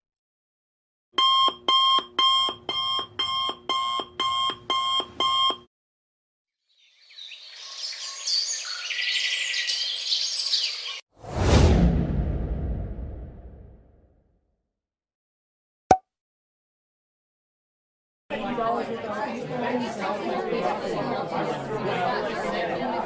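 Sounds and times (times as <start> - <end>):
electronic alarm beeping: 1.2 - 5.7
loud low boom: 11.3 - 14.0.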